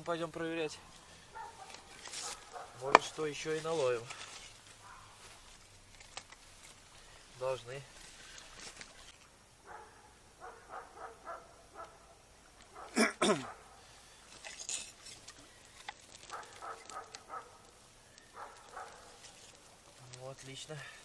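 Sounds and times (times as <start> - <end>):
dogs barking: 1.2 - 3.1, 4.8 - 5.2, 9.6 - 13.9, 16.2 - 19.2.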